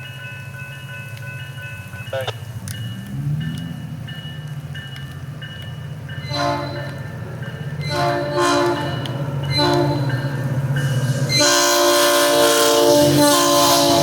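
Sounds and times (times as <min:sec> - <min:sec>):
train air horn blasts: 0:06.3 - 0:07.1, 0:07.8 - 0:10.3, 0:10.9 - 0:14.0.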